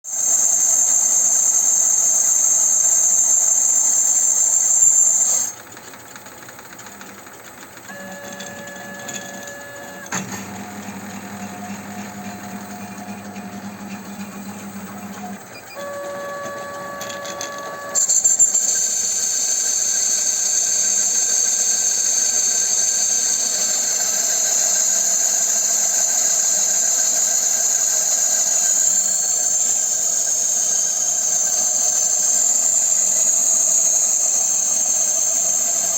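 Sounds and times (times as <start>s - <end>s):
lathe motor hum: 0.2s - 35.9s
whining tones: 7.9s - 35.9s.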